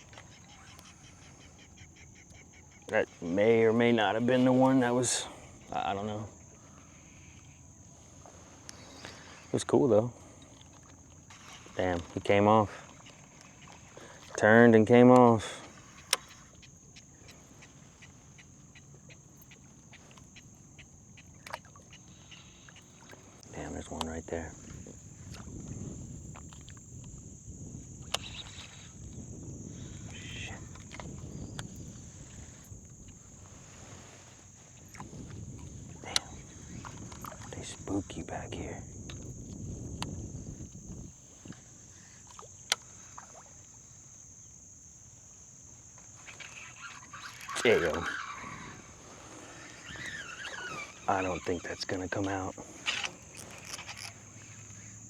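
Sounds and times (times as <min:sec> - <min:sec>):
faint chirps: 0:00.0 - 0:10.6, 0:15.2 - 0:24.8, 0:28.0 - 0:35.0
faint outdoor noise: 0:00.0 - 0:55.0
high-pitched insect drone: 0:00.0 - 0:55.0.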